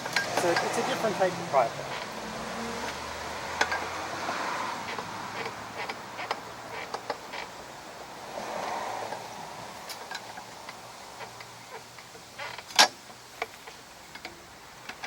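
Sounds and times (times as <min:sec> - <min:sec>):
hand tools clicking on metal: 0:00.0 - 0:01.2.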